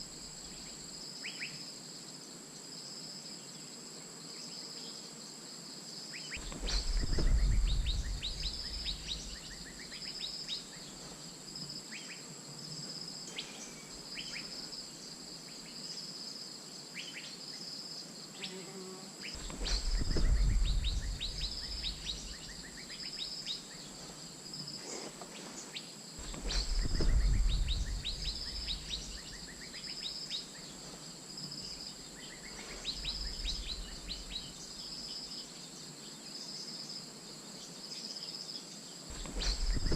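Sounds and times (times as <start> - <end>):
high insect whine: 0.0 - 39.9
bird calls: 6.2 - 11.3, 19.2 - 24.2, 24.8 - 35.3, 39.1 - 39.9
low rumbles: 6.4 - 9.7, 19.4 - 22.7, 26.2 - 29.6, 32.8 - 34.5, 39.1 - 39.9
pulsing insect buzz: 18.1 - 35.2.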